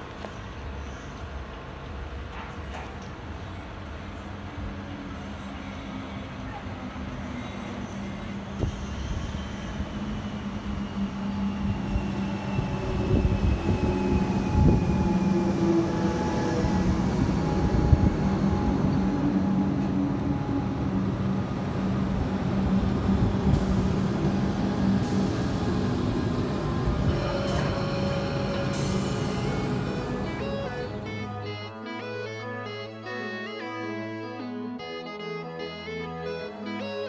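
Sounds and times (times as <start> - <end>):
train running noise: 0.0 - 32.2.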